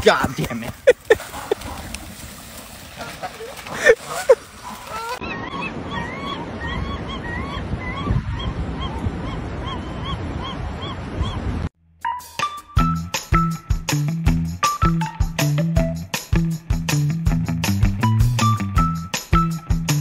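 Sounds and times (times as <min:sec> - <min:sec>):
bird calling: 0:03.2 - 0:11.6
background music: 0:12.0 - 0:20.0.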